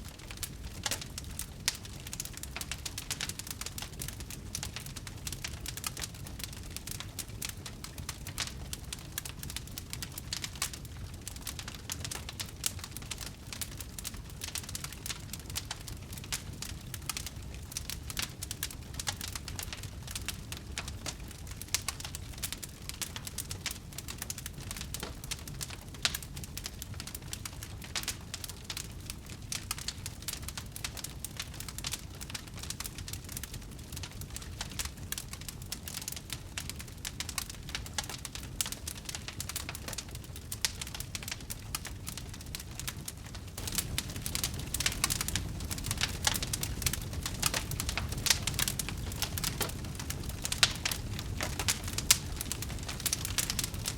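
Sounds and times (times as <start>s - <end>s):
wood fire crackling: 0.0s - 53.9s
low constant rumble: 40.4s - 53.9s.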